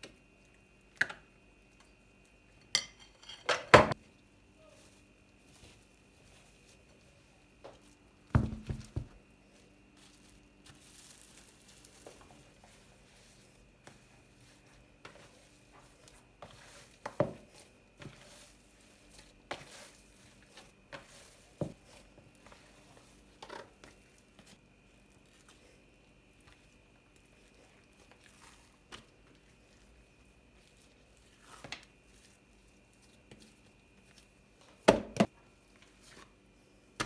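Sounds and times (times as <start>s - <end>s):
kitchen knocks and clatters: 2.7s - 4.0s, 8.4s - 9.2s
plastic or paper crinkling: 10.0s - 13.4s.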